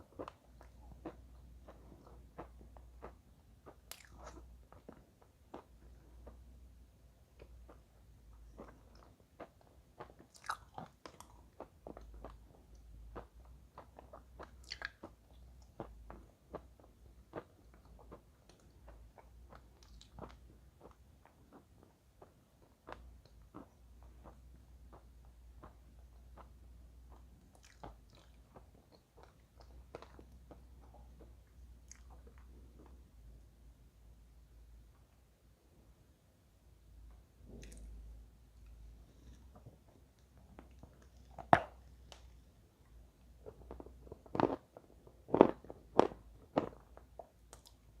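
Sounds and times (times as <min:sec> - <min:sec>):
faint low hum: 0:00.0 - 0:48.0
person chewing chalk: 0:00.1 - 0:06.5, 0:07.4 - 0:33.0, 0:43.4 - 0:47.9.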